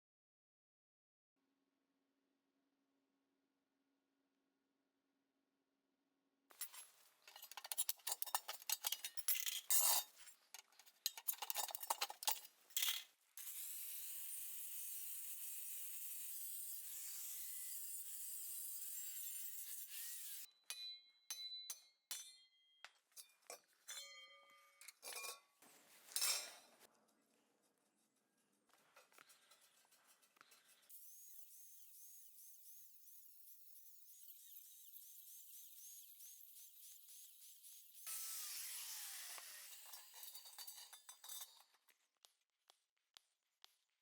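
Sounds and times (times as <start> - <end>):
steel pieces clinking and scraping: 6.5 - 14.4, 16.8 - 26.7, 39.2 - 41.9.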